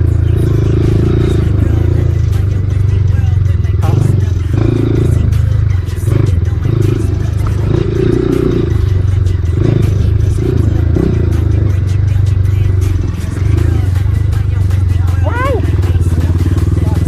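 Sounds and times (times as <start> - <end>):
stones clicking under tyres: 7.3 - 7.8.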